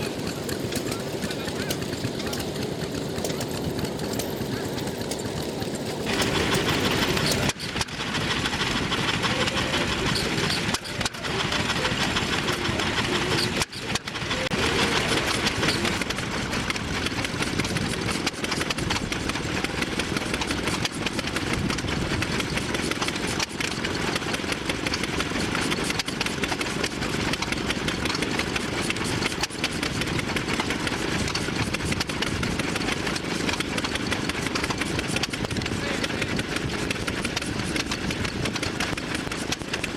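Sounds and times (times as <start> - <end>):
stationary engines running: 0.0 - 39.9.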